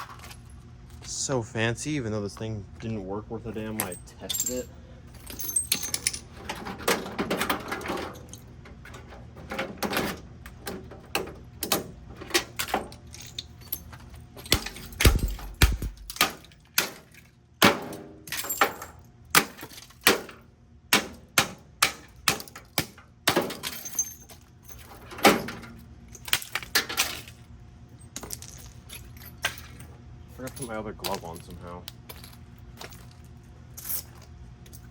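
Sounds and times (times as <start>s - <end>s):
breaking plastic and metal: 5.8s - 24.4s, 25.1s - 27.4s
microwave oven being smashed: 14.4s - 23.7s.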